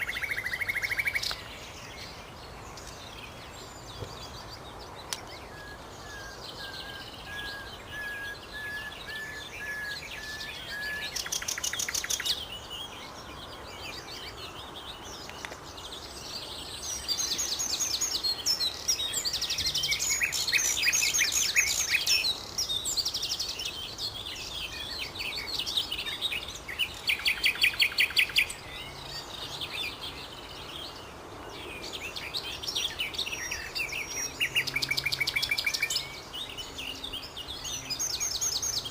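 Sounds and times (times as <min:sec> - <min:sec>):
nightingale singing: 0:00.0 - 0:38.9.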